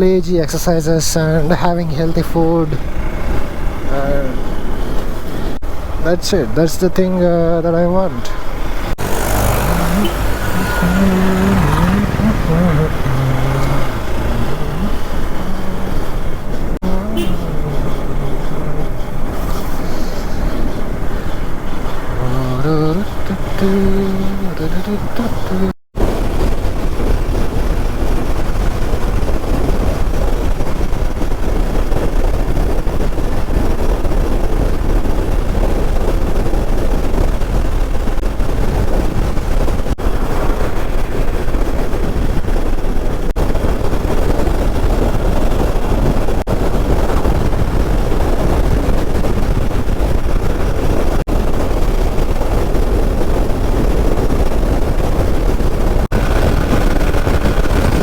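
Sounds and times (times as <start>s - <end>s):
wind rush on microphone: 8.0s - 58.0s
motorcycle engine: 8.1s - 30.2s, 54.6s - 58.0s.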